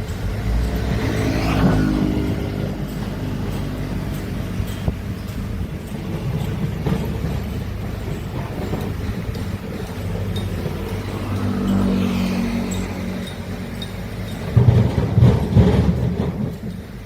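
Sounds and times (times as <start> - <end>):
diesel engine rumbling: 0.0 - 17.0.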